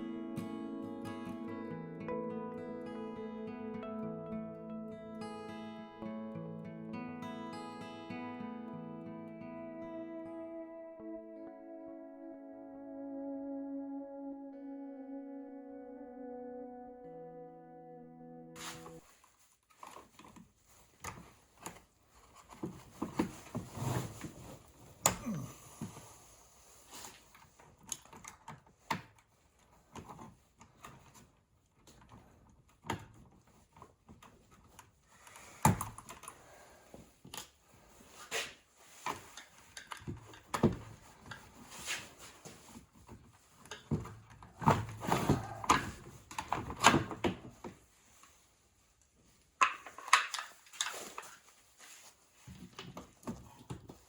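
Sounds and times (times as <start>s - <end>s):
plastic parts clicking and rattling: 49.6s - 51.4s.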